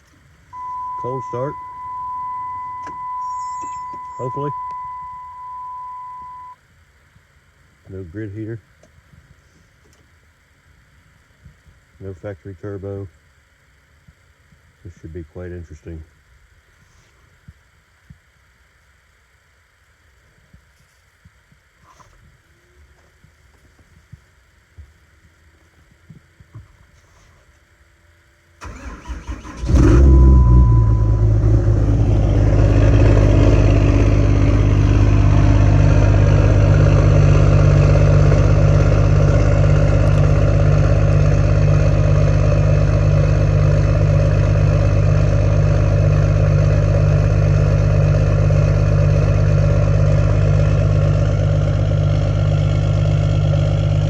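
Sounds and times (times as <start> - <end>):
diesel engine idling: 0.0 - 6.6, 28.6 - 54.0
diesel engine cranking: 0.6 - 6.6, 28.6 - 47.0.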